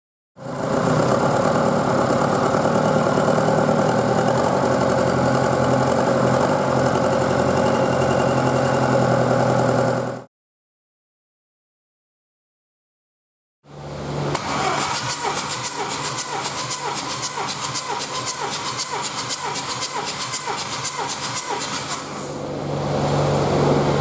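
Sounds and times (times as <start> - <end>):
diesel engine idling: 0.4 - 10.2.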